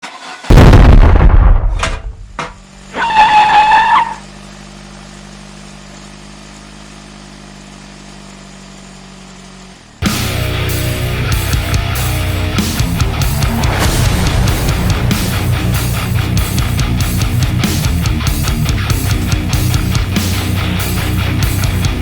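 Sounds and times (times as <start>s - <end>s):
explosion rumble: 0.5s - 2.8s, 11.5s - 19.4s
loud high squeal: 2.8s - 4.3s, 11.9s - 17.6s
heavy rock music: 10.0s - 22.0s.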